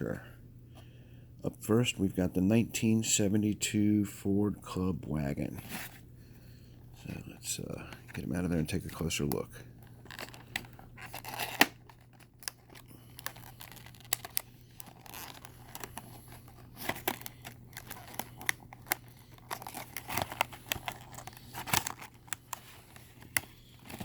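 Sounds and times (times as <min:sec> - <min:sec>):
steady low hum: 0:00.0 - 0:24.0
packaging crinkling: 0:07.0 - 0:24.0.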